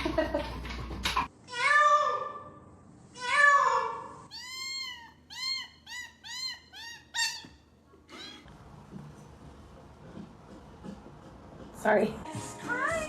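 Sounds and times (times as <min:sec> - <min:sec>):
cat meowing: 0:03.2 - 0:07.0.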